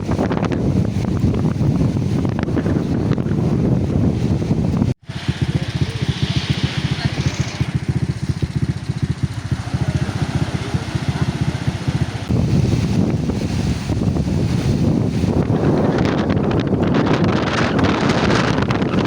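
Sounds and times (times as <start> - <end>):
wind on microphone: 0.0 - 19.0
small engine chugging: 5.0 - 19.0.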